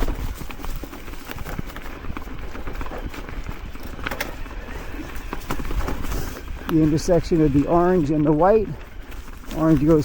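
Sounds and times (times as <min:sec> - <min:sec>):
wind and ground rumble: 0:00.0 - 0:10.0
bike frame rattling clicks: 0:03.8 - 0:06.7.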